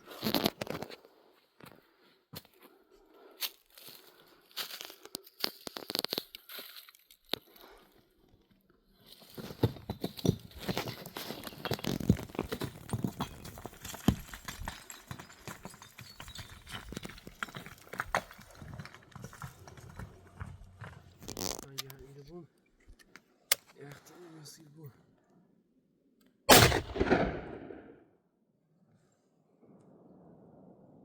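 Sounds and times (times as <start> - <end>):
footsteps crunching on stony ground: 3.4 - 7.6, 9.0 - 21.8.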